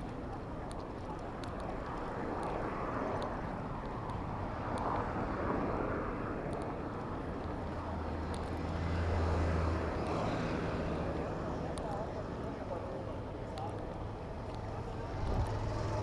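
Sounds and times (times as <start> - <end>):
road noise: 0.0 - 16.0
vehicle engine drone: 7.1 - 16.0.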